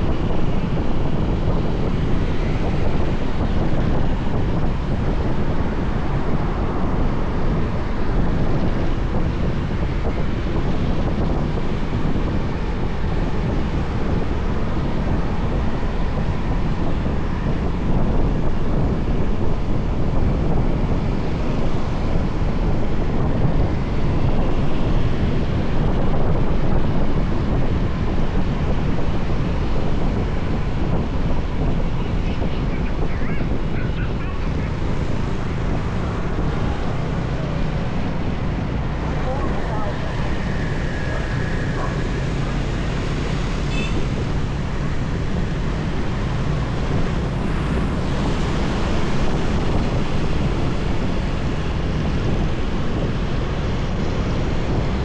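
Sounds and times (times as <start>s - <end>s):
road noise: 0.0s - 55.0s
wind rushing over microphone: 0.0s - 55.0s
motorbike engine: 34.6s - 52.2s.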